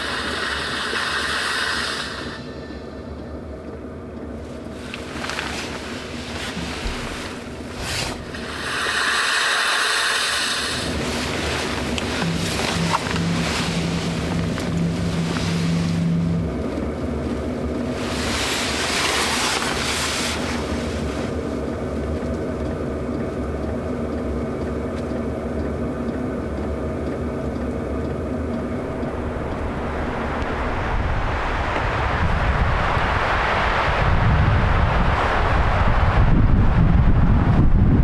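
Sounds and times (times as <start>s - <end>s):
road and wind noise: 0.0s - 38.0s
vehicle engine running: 0.0s - 38.0s
loud rushing noise: 10.6s - 21.3s, 28.8s - 37.8s.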